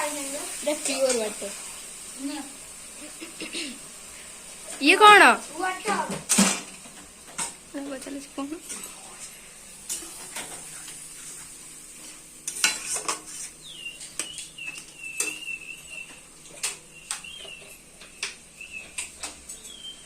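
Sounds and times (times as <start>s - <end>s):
metal utensils clinking on pot: 12.5s - 13.3s, 14.0s - 15.4s.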